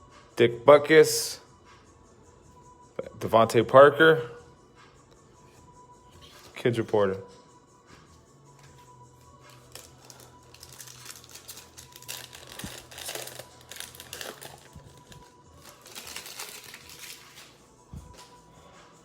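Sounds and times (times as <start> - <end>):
foil wrapper crinkling and tearing: 9.6 - 17.6.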